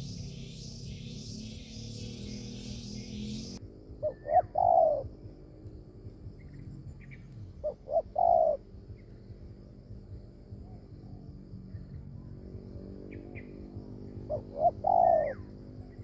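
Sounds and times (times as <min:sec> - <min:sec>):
dove cooing: 0:02.1 - 0:05.1, 0:07.6 - 0:08.8, 0:14.2 - 0:16.0.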